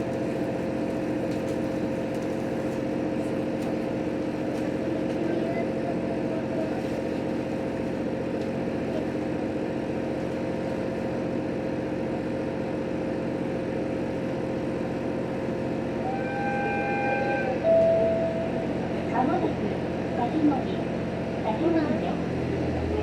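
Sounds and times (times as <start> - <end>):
railcar hum and rumble: 0.0 - 23.0
short clear tone: 17.6 - 18.8.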